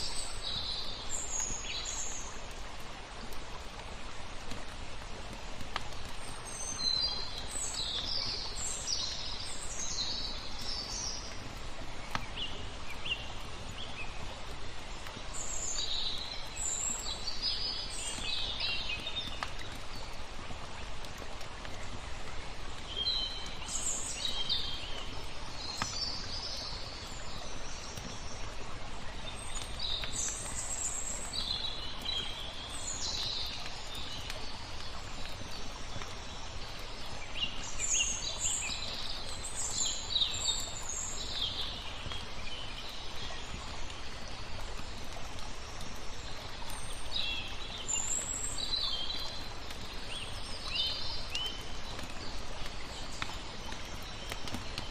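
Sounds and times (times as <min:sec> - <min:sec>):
small birds chirping: 0:00.0 - 0:02.7, 0:05.3 - 0:54.9
flowing water: 0:00.0 - 0:54.9
wood fire crackling: 0:02.5 - 0:06.4, 0:19.0 - 0:22.9, 0:51.8 - 0:54.9.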